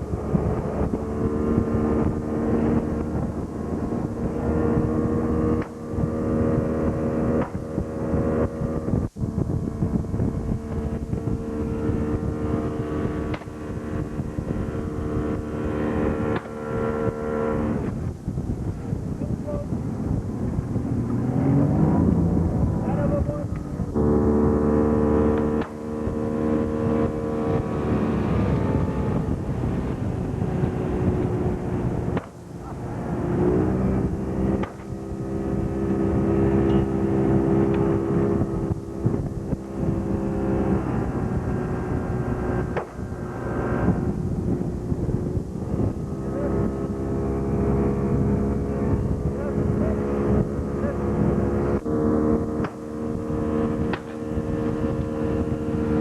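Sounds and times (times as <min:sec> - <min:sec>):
boat motor running: 0:00.0 - 0:56.0.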